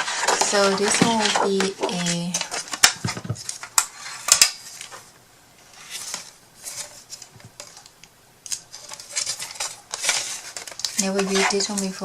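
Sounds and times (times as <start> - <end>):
small hard objects clattering: 0.0 - 4.5, 8.5 - 12.0.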